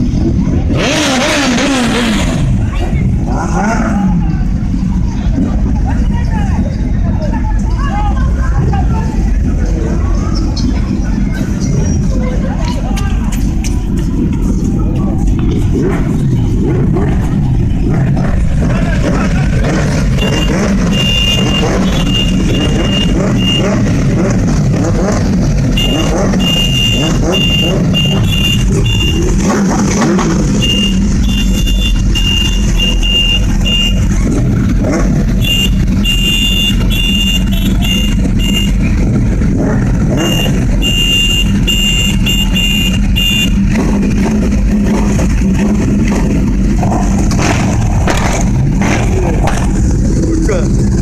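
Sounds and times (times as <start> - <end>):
motorbike engine running: 10.9 - 51.0.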